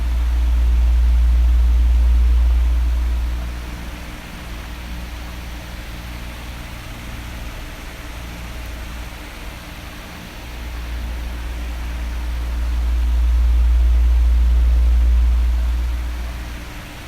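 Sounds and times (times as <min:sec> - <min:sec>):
low rumble: 0:00.0 - 0:05.4, 0:10.7 - 0:17.0
electric fan rushing: 0:00.0 - 0:17.0.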